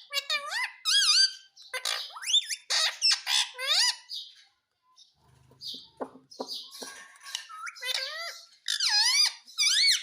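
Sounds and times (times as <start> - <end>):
parrot squawking: 0.0 - 4.2, 6.4 - 10.0.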